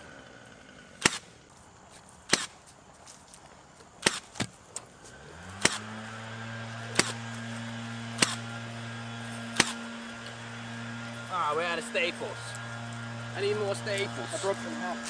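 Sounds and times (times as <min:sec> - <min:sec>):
staple gun firing into wood: 0:01.0 - 0:01.3, 0:02.3 - 0:02.5, 0:04.0 - 0:04.5, 0:05.6 - 0:05.8, 0:06.9 - 0:07.2, 0:08.2 - 0:08.5, 0:09.6 - 0:09.8
motor humming: 0:04.8 - 0:15.0.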